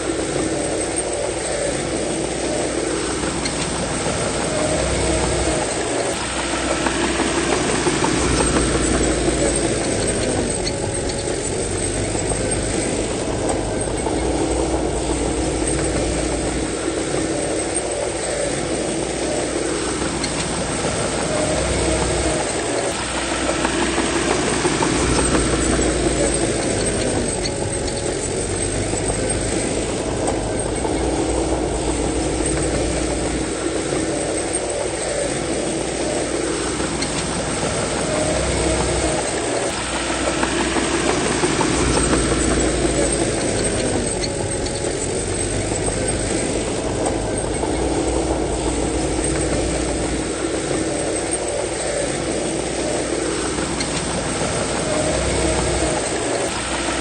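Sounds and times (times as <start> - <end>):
bulldozer diesel engine under load: 0.0 - 57.0.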